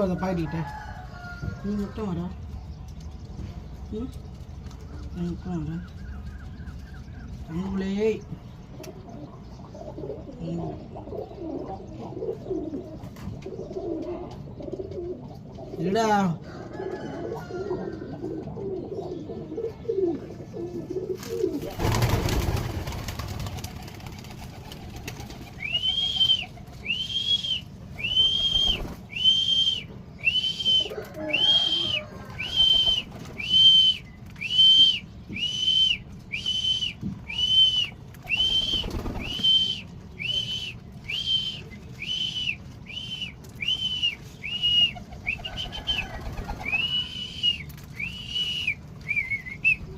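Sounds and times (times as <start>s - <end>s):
pigeon cooing: 8.8s - 23.5s, 24.5s - 49.9s
wings flapping: 21.1s - 49.8s.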